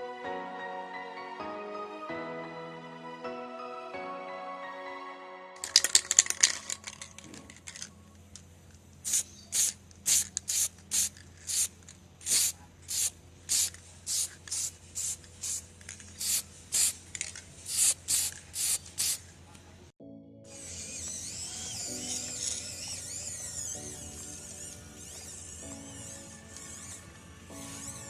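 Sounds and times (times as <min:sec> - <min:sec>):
sandpaper scraping plywood: 0:23.0 - 0:28.0.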